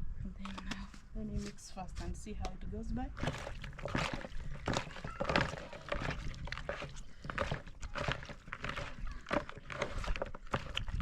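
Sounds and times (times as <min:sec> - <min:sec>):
wet slaps of mixing by hand: 0:03.2 - 0:11.0.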